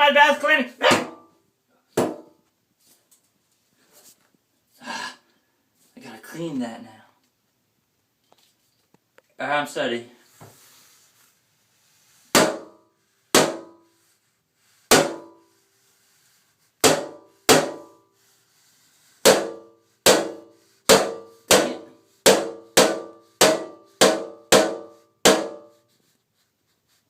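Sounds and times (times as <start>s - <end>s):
machete striking a bathtub: 0.8s - 1.3s, 2.0s - 2.4s, 12.3s - 13.8s, 14.9s - 15.4s, 16.8s - 18.0s, 19.2s - 25.7s.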